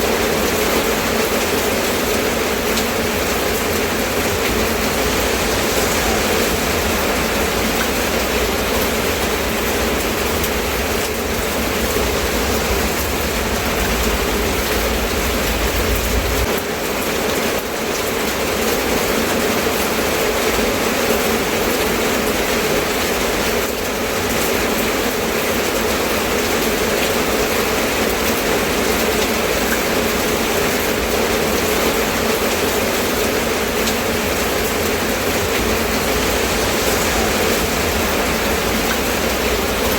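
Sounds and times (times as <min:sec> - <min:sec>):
steady rainfall hiss: 0:00.0 - 0:39.9
low rumble: 0:01.8 - 0:16.5, 0:33.8 - 0:39.9.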